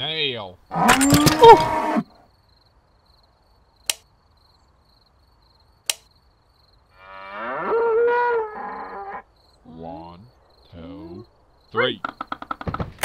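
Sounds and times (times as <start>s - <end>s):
cow mooing: 0.7s - 2.1s, 7.0s - 9.2s
sharp clicks: 3.8s - 4.1s, 5.8s - 6.1s.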